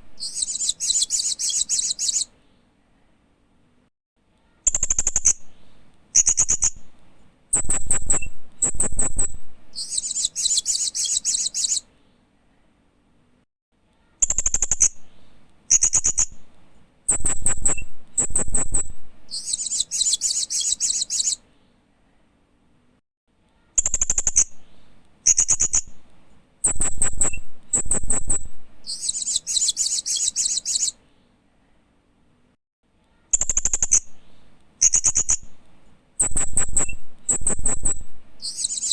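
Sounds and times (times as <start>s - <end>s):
parrot chirping with buzzy trills: 0.0s - 2.3s, 4.7s - 5.5s, 6.1s - 11.9s, 14.2s - 15.1s, 15.7s - 16.5s, 17.1s - 21.4s, 23.8s - 26.0s, 26.6s - 31.0s, 33.3s - 34.2s, 34.8s - 35.6s, 36.2s - 38.9s.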